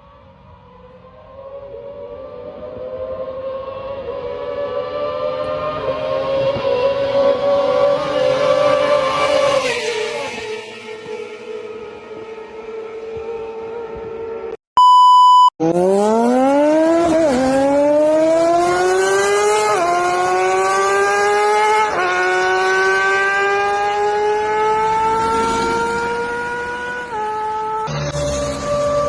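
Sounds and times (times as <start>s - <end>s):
motorcycle engine accelerating: 1.3s - 14.6s, 15.6s - 29.0s
short electronic beep: 14.8s - 15.6s.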